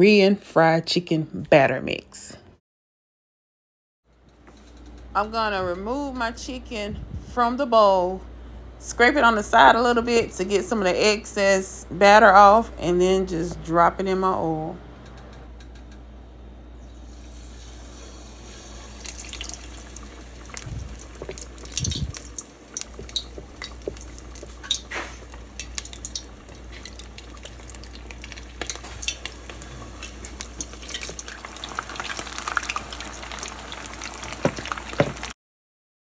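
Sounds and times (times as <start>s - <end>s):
chicken wings deep-frying in oil: 17.0s - 35.4s
dull knocks: 34.4s - 35.3s.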